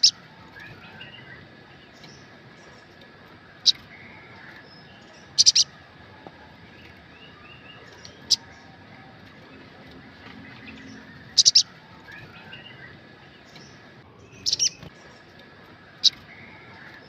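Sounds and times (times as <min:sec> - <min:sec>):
bird twittering: 0:00.0 - 0:17.0
bird sharp high chirps: 0:03.6 - 0:05.8, 0:06.8 - 0:08.7, 0:10.5 - 0:15.2.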